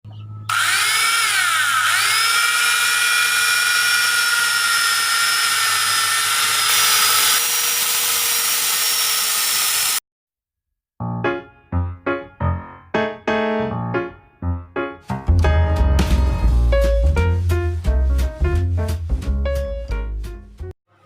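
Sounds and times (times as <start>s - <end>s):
angle grinder whining: 0.5s - 10.0s.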